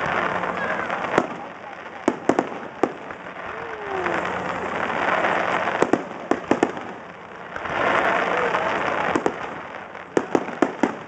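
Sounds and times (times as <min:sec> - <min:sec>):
dense hiss and crackle: 0:00.0 - 0:11.0
fireworks bursting bangs: 0:00.0 - 0:11.0.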